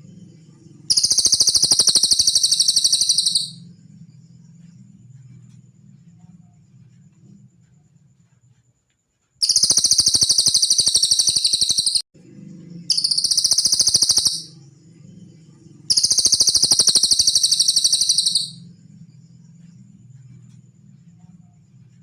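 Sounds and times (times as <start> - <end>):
faint low hum: 0.0 - 22.0
songbird trilling: 0.8 - 3.6, 9.4 - 12.0, 12.9 - 14.6, 15.9 - 18.6.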